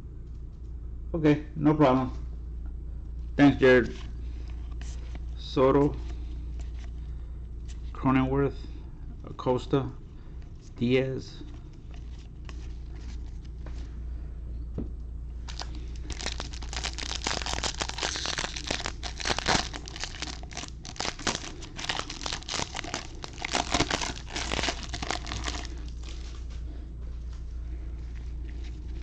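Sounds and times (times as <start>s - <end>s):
plastic wrapper tearing and crinkling: 15.4s - 26.4s.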